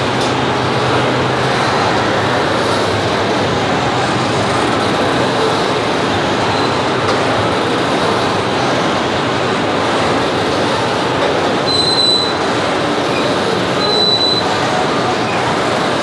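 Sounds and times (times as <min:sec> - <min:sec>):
steel wheels rolling on rail: 0:00.0 - 0:16.0
high wheel squeal: 0:11.6 - 0:12.5, 0:13.1 - 0:15.4.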